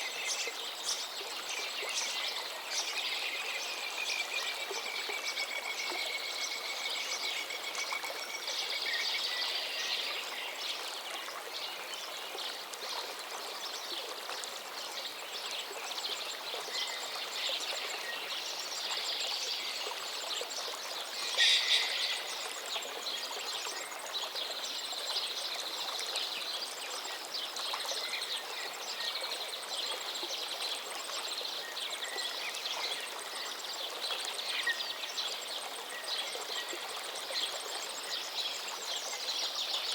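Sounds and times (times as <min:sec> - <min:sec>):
river water flowing: 0:00.0 - 0:39.9
small birds chirping: 0:21.1 - 0:22.5.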